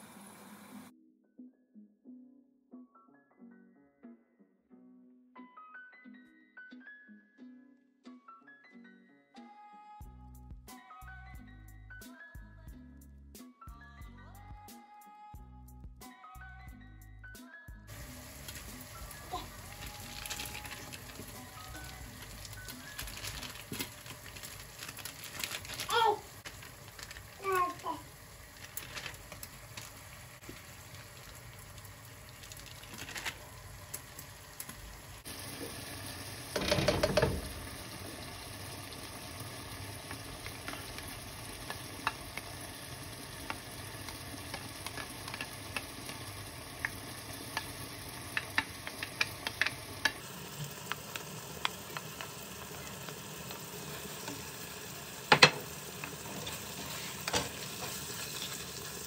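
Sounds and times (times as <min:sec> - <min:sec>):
food sizzling in a pan: 0:00.0 - 0:00.9, 0:17.9 - 0:59.0.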